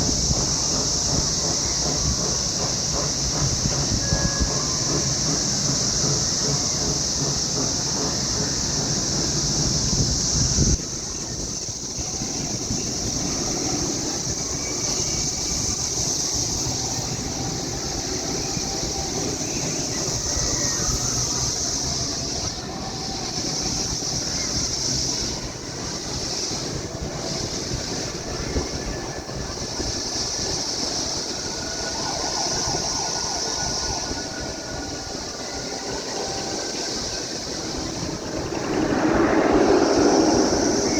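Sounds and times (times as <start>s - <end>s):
cicadas droning: 0.0s - 40.9s
low rumble: 37.6s - 40.9s.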